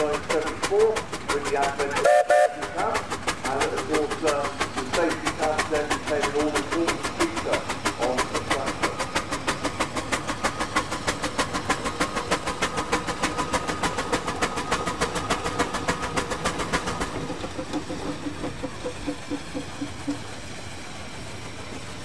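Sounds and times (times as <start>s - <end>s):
engine running with rapid beat: 0.0s - 22.0s.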